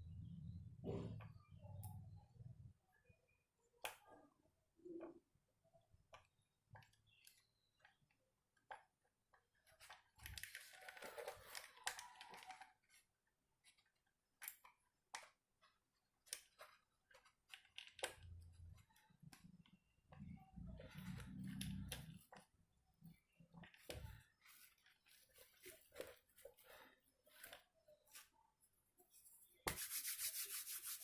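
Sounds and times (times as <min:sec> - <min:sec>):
small parts clicking and tapping: 0:03.7 - 0:28.3.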